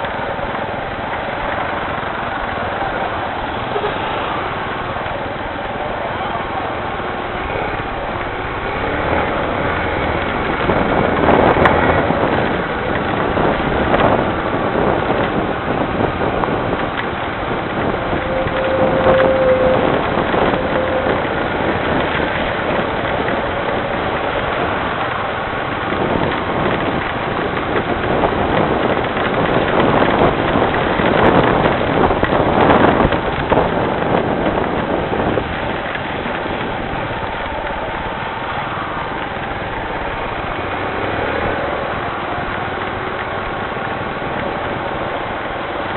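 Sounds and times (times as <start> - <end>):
rain falling: 0.0 - 45.9
vehicles passing on wet street: 0.0 - 45.9
brief tone: 18.2 - 21.2.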